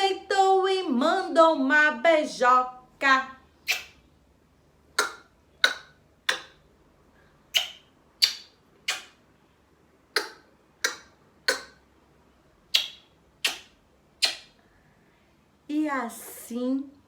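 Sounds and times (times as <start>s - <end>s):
sharp short smacks: 3.7s - 4.0s, 5.0s - 6.6s, 7.5s - 9.2s, 12.7s - 14.6s.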